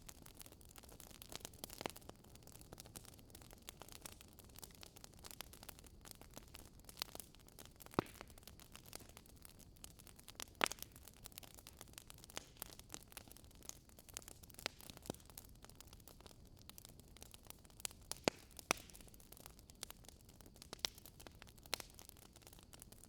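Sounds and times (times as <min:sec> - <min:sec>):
wood fire crackling: 0:00.0 - 0:23.0
loud fire pops: 0:07.8 - 0:09.1, 0:18.1 - 0:19.1.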